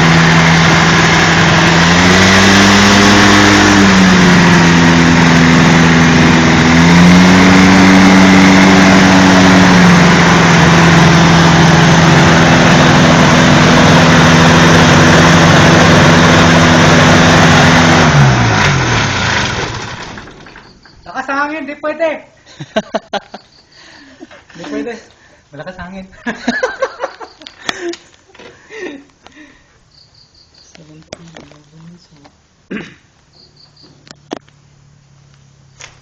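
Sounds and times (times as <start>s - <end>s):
microlight engine and propeller: 0.0s - 20.4s.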